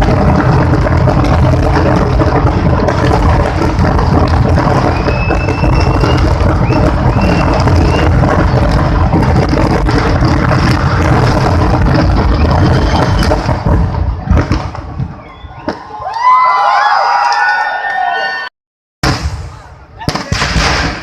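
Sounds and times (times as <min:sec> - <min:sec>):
firecrackers going off: 0:00.0 - 0:16.4, 0:19.0 - 0:21.0.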